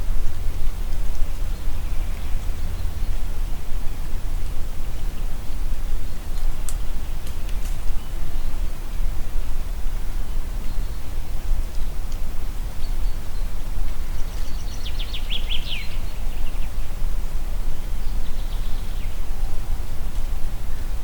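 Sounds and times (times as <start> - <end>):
wind through a forest: 0.0 - 21.0.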